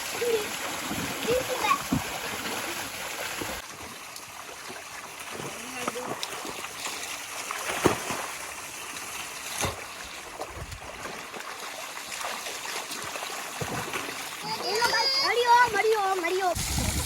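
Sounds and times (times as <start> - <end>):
water splashing in muddy pool: 0.0 - 17.0.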